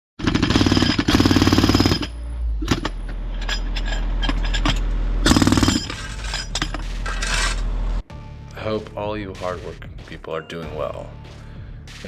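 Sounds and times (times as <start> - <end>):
jackhammer hammering: 0.2 - 3.0, 4.6 - 7.5.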